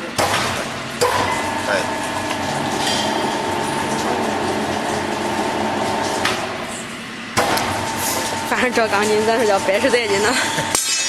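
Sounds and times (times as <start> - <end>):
rebar machine whine and rumble: 0.0 - 11.0
sharp metal clank: 10.7 - 11.0.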